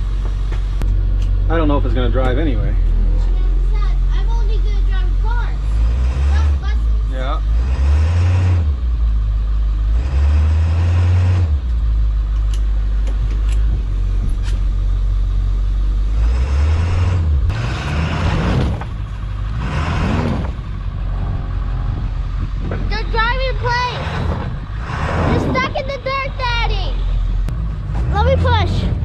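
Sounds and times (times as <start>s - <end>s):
vehicle engine revving: 0.0s - 29.0s
tyres spinning in snow: 16.0s - 29.0s.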